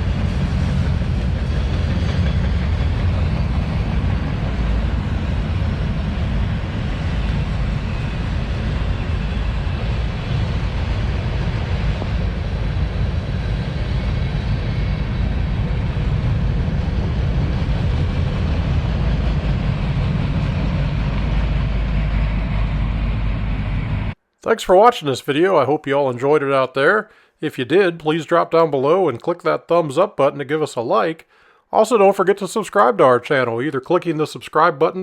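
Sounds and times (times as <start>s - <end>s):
freight train rumbling on rails: 0.0s - 24.2s.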